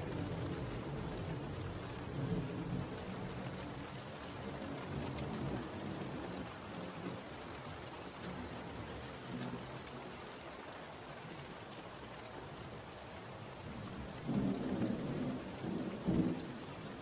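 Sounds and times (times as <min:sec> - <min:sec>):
low rumble of thunder: 0:00.0 - 0:06.5, 0:13.7 - 0:17.0
steady rain falling: 0:00.0 - 0:17.0.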